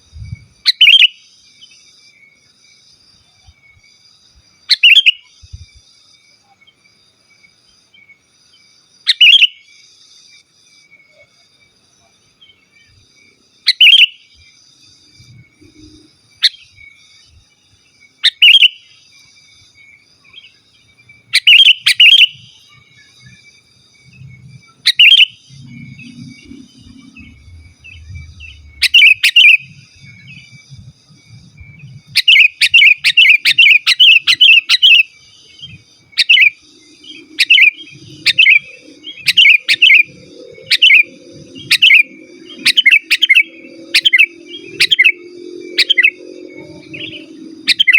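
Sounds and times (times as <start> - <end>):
bulbul chirping calls: 0.6 - 1.3, 4.7 - 5.3, 13.7 - 14.4, 18.2 - 19.0, 20.3 - 23.4, 24.2 - 47.9.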